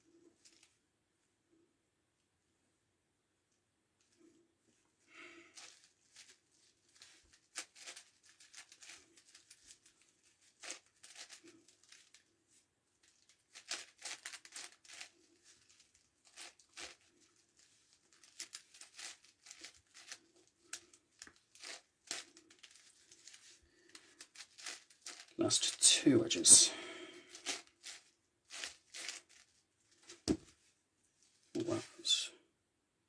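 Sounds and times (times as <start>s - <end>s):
puzzle cube clicking and scraping: 5.5s - 12.2s, 13.1s - 30.6s.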